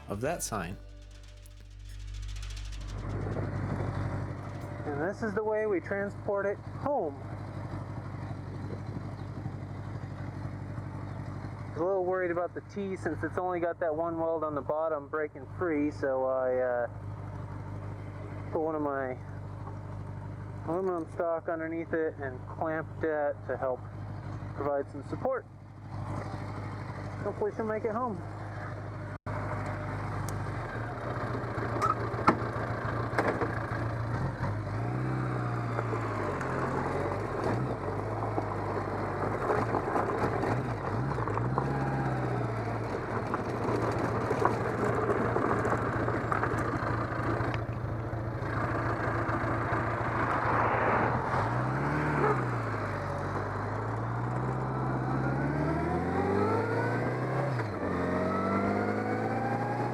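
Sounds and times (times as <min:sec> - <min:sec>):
road noise: 0:00.0 - 0:11.7, 0:28.2 - 0:59.9
vehicle engine: 0:00.0 - 0:12.3, 0:25.5 - 0:59.9.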